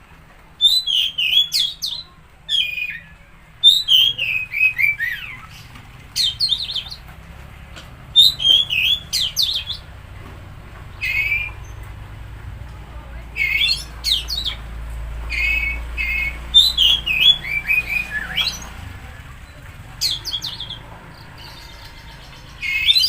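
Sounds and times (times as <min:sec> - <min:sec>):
songbird whistling phrases: 0:00.6 - 0:07.0, 0:08.2 - 0:09.9, 0:10.9 - 0:11.8, 0:13.4 - 0:14.6, 0:15.3 - 0:20.8, 0:21.4 - 0:23.0.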